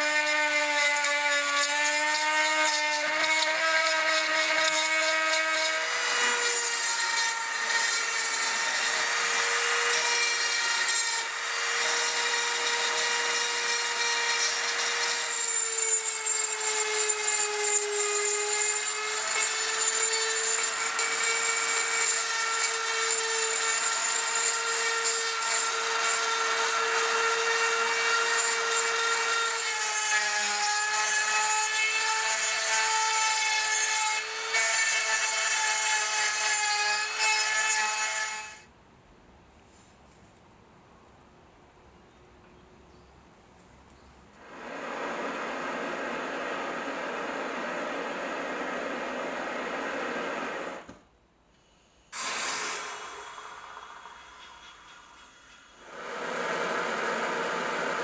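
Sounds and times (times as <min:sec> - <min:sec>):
power tool grinding steel: 0:00.0 - 0:38.6, 0:52.2 - 0:58.0.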